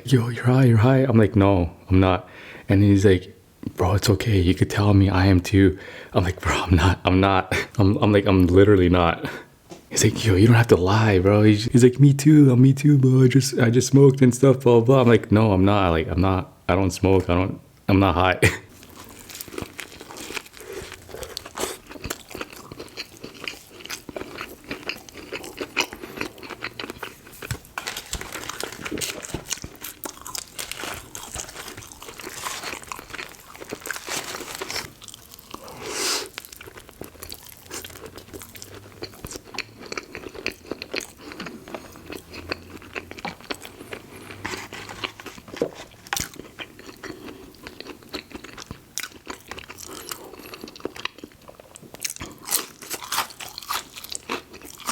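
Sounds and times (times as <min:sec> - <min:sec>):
crunching fried food: 0:18.7 - 0:54.9.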